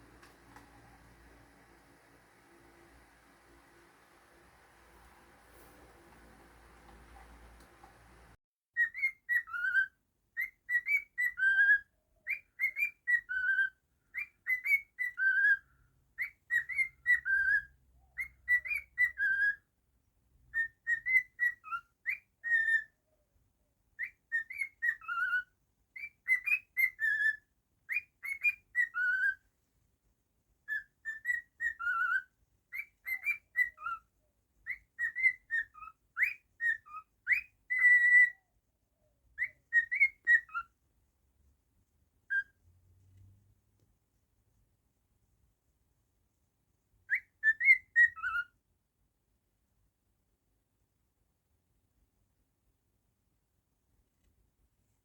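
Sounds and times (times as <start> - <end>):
cockatiel whistling: 24.0 - 29.4, 30.7 - 34.0, 34.7 - 38.4, 39.4 - 40.7, 47.1 - 48.5.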